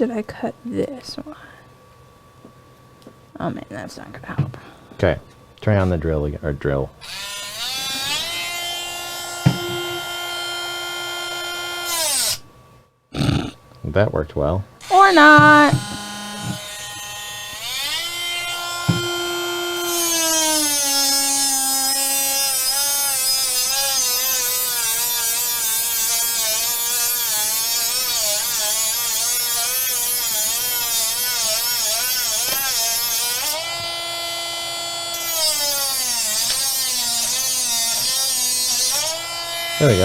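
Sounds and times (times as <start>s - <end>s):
rotary tool cutting wood: 7.0s - 12.4s, 14.8s - 40.0s.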